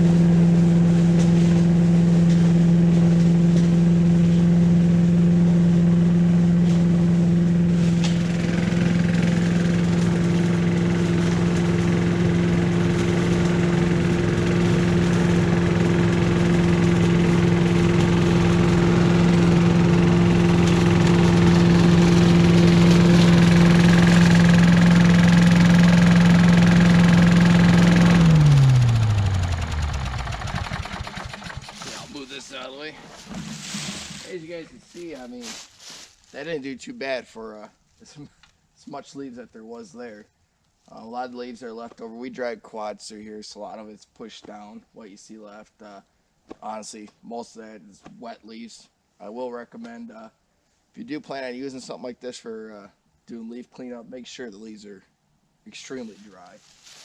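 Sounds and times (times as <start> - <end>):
leaf vacuum engine running: 0.0 - 36.6.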